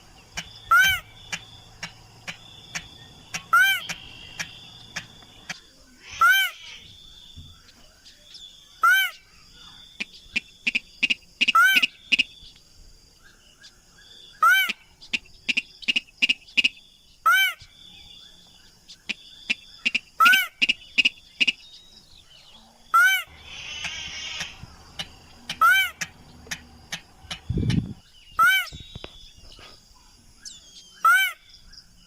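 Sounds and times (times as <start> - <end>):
bird call arched notes: 0.0 - 7.0, 22.9 - 29.4
sharp ticking bird notes: 0.0 - 12.7, 13.3 - 29.5.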